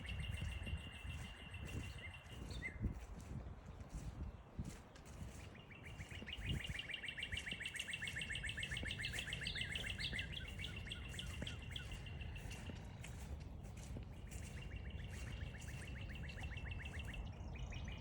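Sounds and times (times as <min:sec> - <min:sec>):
low wind noise: 0:00.0 - 0:18.0.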